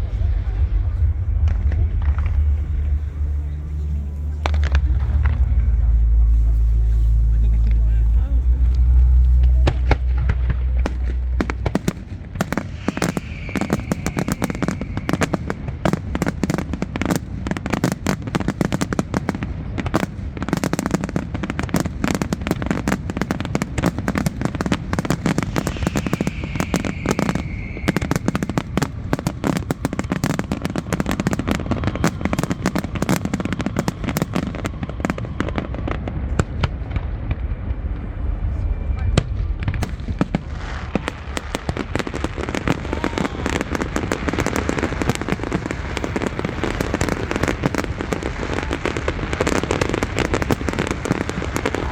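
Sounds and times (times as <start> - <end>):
fireworks bangs and crackles: 0.0 - 51.9
falling firework whistle: 8.6 - 19.2, 20.0 - 37.0, 38.5 - 51.9.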